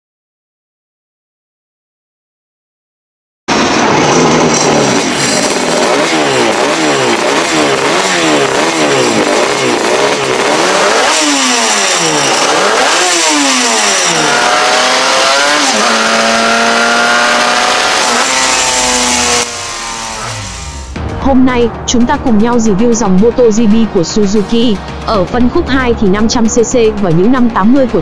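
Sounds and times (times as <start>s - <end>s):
racing engine revving: 3.5s - 21.0s.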